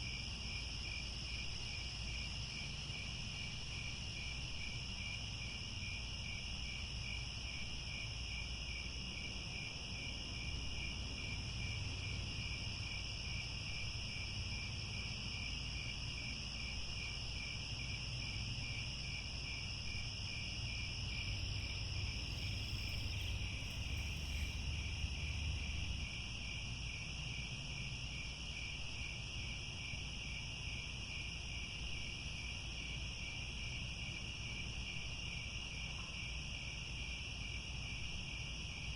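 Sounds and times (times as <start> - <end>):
crickets chirping: 0.0 - 38.9
faint low rumble: 20.7 - 26.7.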